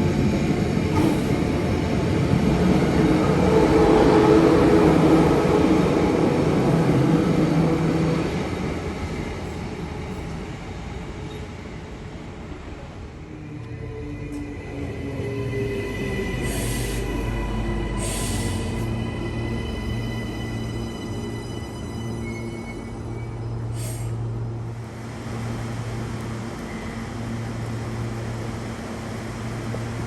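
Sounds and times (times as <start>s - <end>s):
electric train rumbling on rails: 0.0s - 30.0s.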